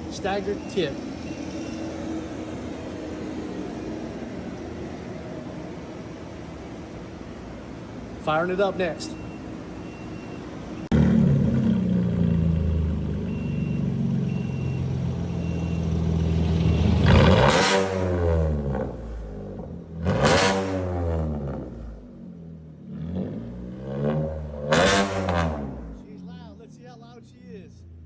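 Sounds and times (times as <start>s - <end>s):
loud truck engine starting and revving: 9.2s - 27.2s.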